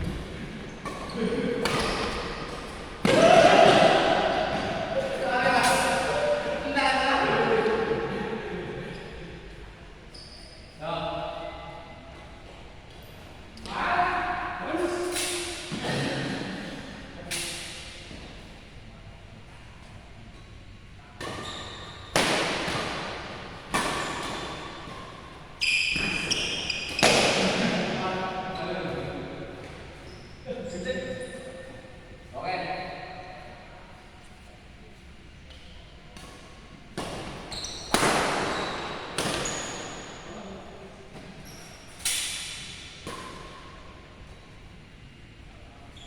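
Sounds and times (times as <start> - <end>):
shoe squeak: 0.7 - 2.6, 10.1 - 10.8, 21.3 - 22.1, 23.8 - 27.2, 30.0 - 31.6, 37.4 - 40.4, 41.4 - 42.1
rackets hitting shuttlecock: 0.8 - 4.8, 22.1 - 27.6, 36.2 - 40.2.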